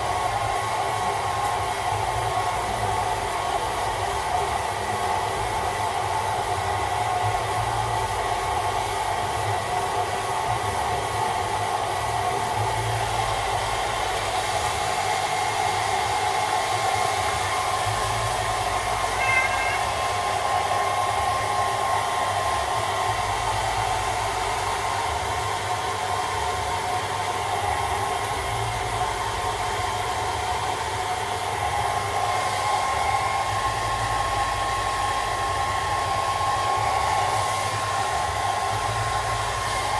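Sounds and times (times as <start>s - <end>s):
hairdryer blowing air: 0.0s - 39.9s
brief high-pitched sound: 19.2s - 20.2s.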